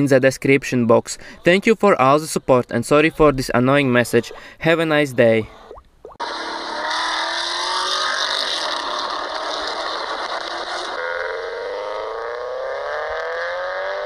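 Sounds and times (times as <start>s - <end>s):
car engine accelerating: 6.2s - 14.0s.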